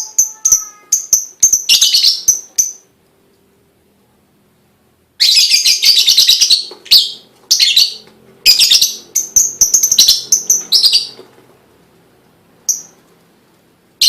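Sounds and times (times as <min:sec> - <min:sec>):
lovebird chattering chirps: 0:00.0 - 0:02.9, 0:05.2 - 0:11.2, 0:12.6 - 0:13.0.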